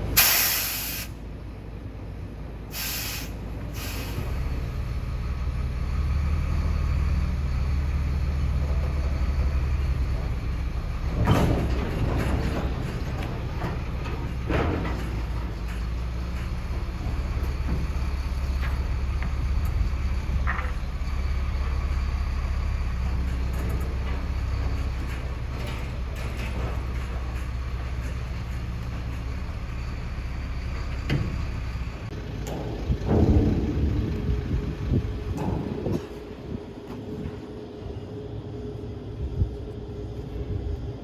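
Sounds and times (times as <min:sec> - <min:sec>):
heavy vehicle engine humming: 0:00.0 - 0:41.0
clatter and knocking: 0:08.6 - 0:37.4.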